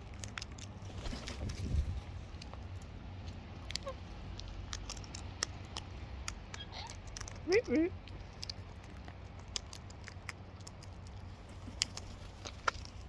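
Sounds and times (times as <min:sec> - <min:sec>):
beaks and claws clicking: 0:00.0 - 0:13.0
faint bird squeak: 0:06.6 - 0:07.0.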